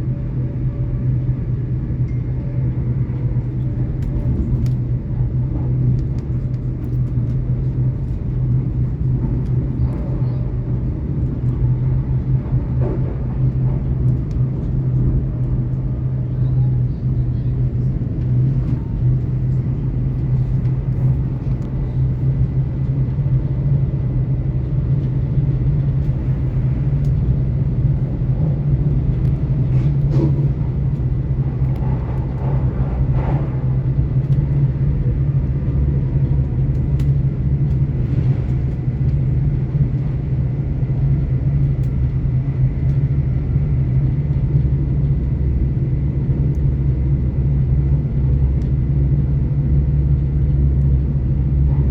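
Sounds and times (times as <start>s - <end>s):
train wheels rumbling: 0.1s - 51.9s.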